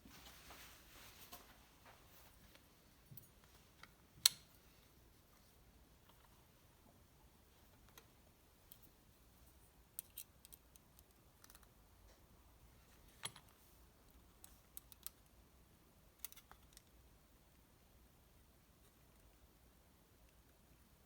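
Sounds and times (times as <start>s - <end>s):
small parts and tools clicking: 9.9s - 11.8s, 13.2s - 15.3s, 16.2s - 17.0s.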